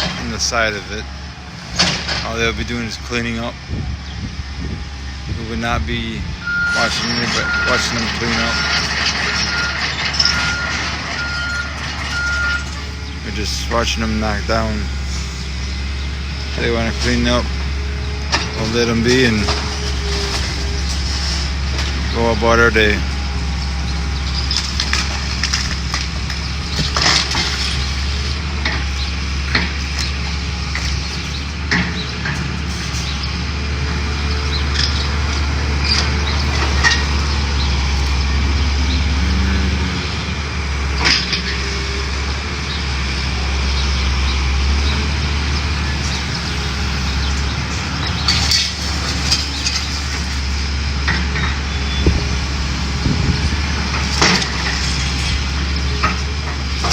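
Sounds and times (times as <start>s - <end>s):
heavy machine rumbling: 0.0s - 56.9s
debris cracking and crunching: 16.6s - 33.2s, 45.8s - 56.9s
sharp cracks and crashes: 24.3s - 33.1s, 53.9s - 56.9s.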